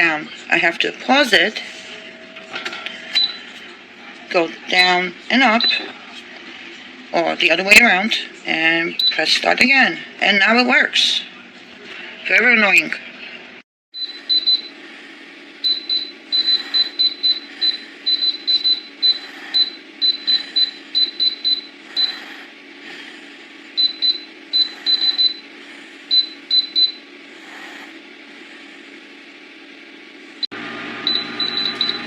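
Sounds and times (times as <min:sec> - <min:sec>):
steady low hum: 0:00.0 - 0:32.0
oven control panel beeping: 0:01.9 - 0:03.6, 0:14.0 - 0:14.8, 0:15.6 - 0:22.1, 0:23.8 - 0:25.5, 0:26.1 - 0:27.0, 0:31.0 - 0:32.0.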